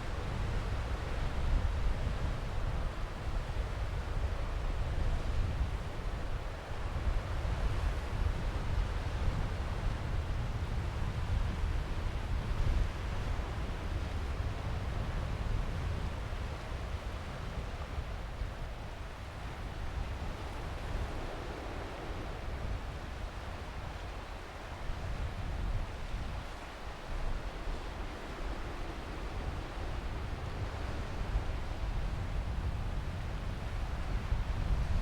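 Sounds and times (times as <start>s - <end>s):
wind rumbling on microphone: 0.0s - 35.0s
waves washing onto beach: 18.8s - 35.0s.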